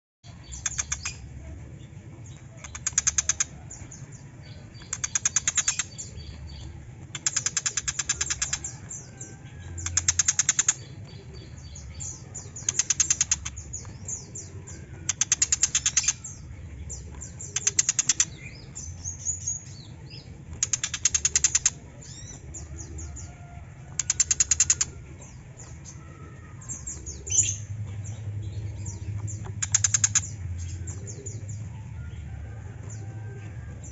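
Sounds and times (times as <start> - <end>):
bird harsh chattering rattles: 2.6 - 3.6, 4.8 - 6.2, 7.1 - 9.1, 9.8 - 10.9, 12.6 - 13.7, 15.0 - 16.3, 20.6 - 21.8, 23.9 - 25.0.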